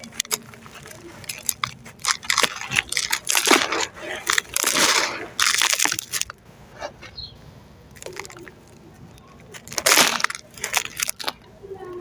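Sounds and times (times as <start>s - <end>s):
cement chunks crunching by hand: 0.0s - 6.4s, 9.5s - 11.4s
small cracks: 0.0s - 6.4s, 7.9s - 12.0s.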